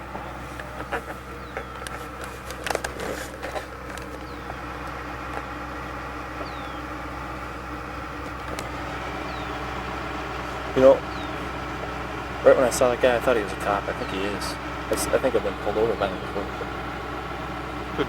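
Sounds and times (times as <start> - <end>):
vehicle engine idling: 0.0 - 18.0
clicks and clanks: 0.6 - 5.5.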